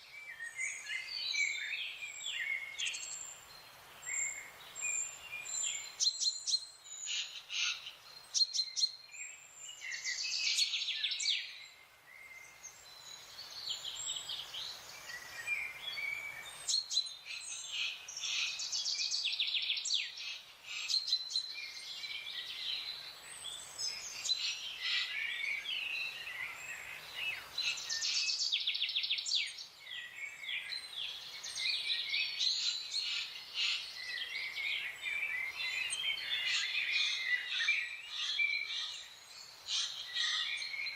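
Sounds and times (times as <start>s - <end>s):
wild birds singing and trilling: 0.0s - 40.9s.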